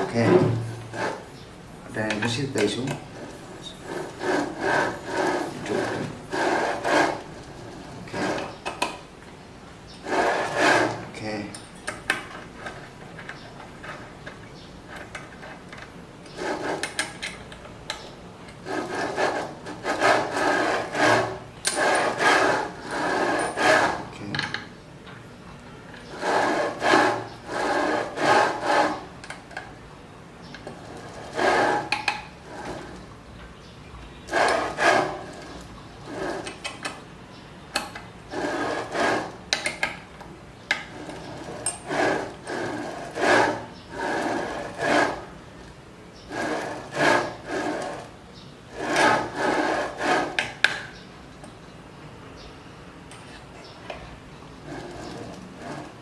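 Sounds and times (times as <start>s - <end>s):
rasping scraping strokes: 0.0s - 1.4s, 2.2s - 8.6s, 10.0s - 11.4s, 16.3s - 17.2s, 18.6s - 24.2s, 26.1s - 29.2s, 30.7s - 33.0s, 34.2s - 36.8s, 38.3s - 39.6s, 40.8s - 45.4s, 46.2s - 50.8s, 54.6s - 56.0s.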